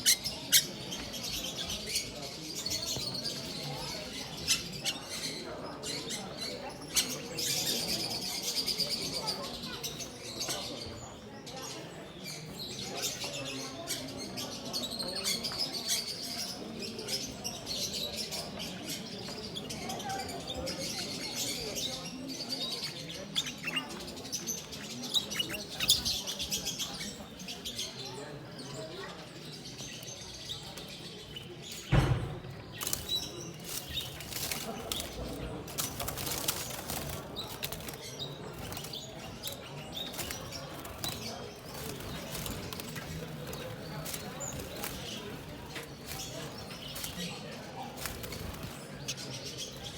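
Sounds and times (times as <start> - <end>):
small birds chirping: 0.0 - 49.9
wings fluttering: 32.7 - 49.9.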